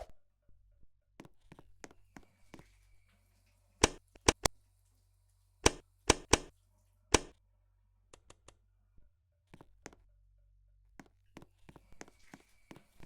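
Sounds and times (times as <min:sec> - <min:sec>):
sharp knocks: 0:03.8 - 0:04.5, 0:05.6 - 0:06.5.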